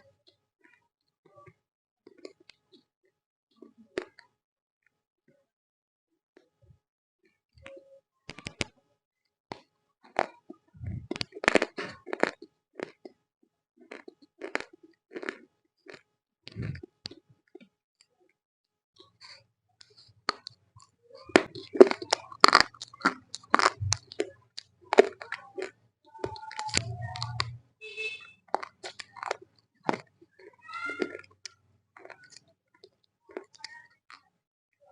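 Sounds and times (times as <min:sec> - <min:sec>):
clay being chewed with crunches: 0:09.5 - 0:13.2, 0:13.8 - 0:17.7, 0:19.0 - 0:27.5, 0:28.4 - 0:34.3.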